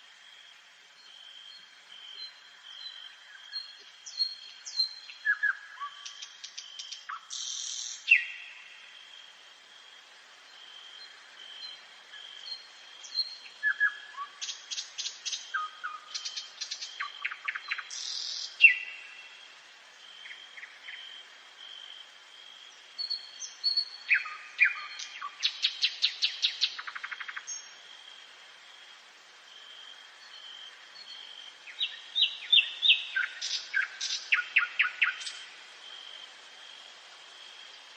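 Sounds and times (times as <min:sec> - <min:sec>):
nightingale singing trills: 0:00.9 - 0:09.1, 0:10.4 - 0:19.5, 0:22.6 - 0:27.9, 0:30.1 - 0:36.1.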